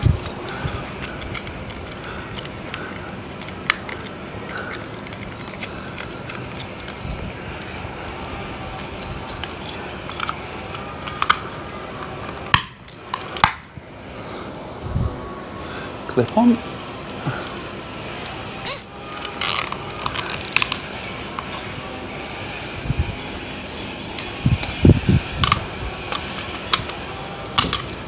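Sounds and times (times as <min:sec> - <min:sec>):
background hiss: 0:13.7 - 0:24.2.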